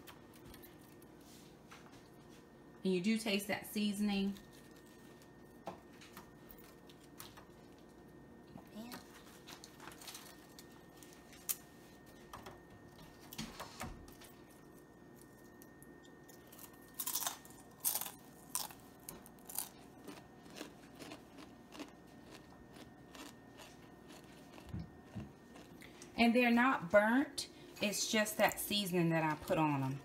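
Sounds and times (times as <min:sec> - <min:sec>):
crunching chips being chewed: 0:09.0 - 0:11.7, 0:14.6 - 0:26.1.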